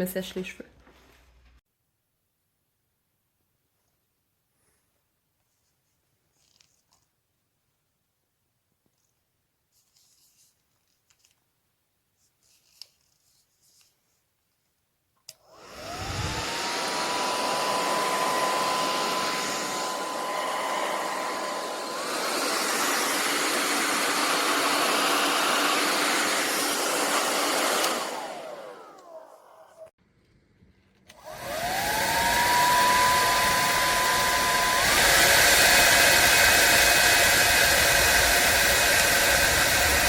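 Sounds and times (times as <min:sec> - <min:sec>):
hair dryer running: 0:15.3 - 0:29.9, 0:31.1 - 0:40.0
hair dryer switch click: 0:27.6 - 0:28.2.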